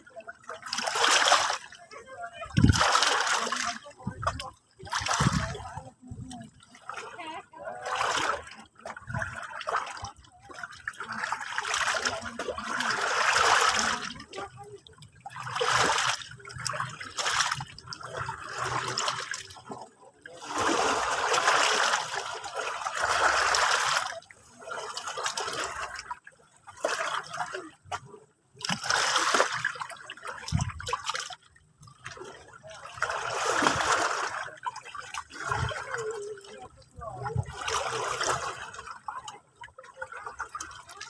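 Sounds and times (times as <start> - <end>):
sea waves washing in: 20.3 - 26.0.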